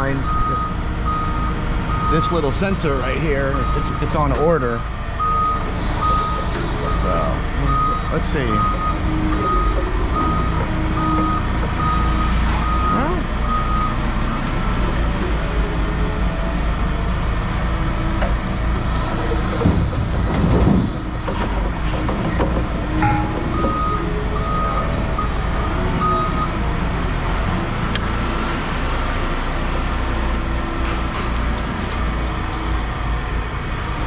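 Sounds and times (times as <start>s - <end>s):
reversing alarm beeping: 0.0s - 4.2s, 5.2s - 17.0s, 18.8s - 29.4s
diesel equipment rumbling: 0.0s - 34.0s.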